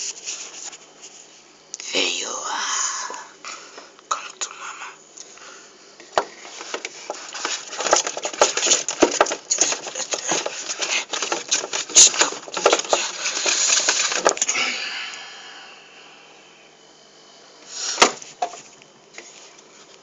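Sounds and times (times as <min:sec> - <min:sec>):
packaging rustling and crinkling: 0:06.2 - 0:14.5.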